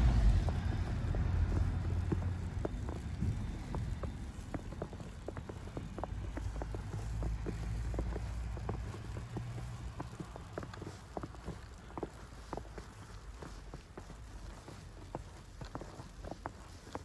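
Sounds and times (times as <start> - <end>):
low steady rumble: 0.0 - 7.4
footsteps on snow: 0.0 - 17.0.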